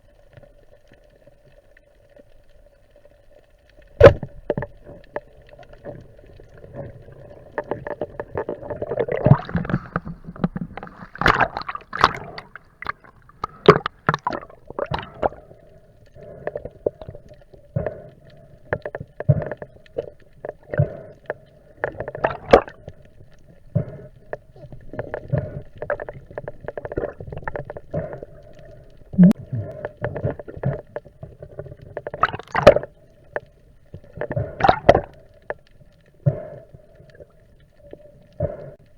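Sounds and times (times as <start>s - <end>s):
steady underwater hum: 0.0s - 38.9s
underwater clicks and knocks: 3.8s - 15.4s, 18.7s - 23.2s, 24.2s - 35.7s
bubbling underwater: 3.9s - 18.0s, 18.7s - 23.1s, 23.7s - 33.1s, 34.0s - 35.3s.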